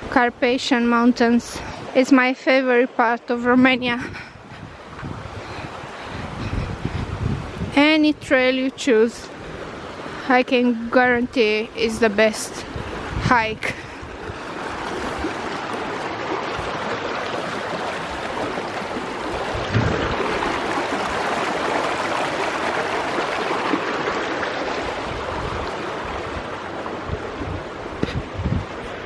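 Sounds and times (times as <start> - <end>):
mountain stream rushing: 0.0 - 29.0
low thump: 19.7 - 20.4.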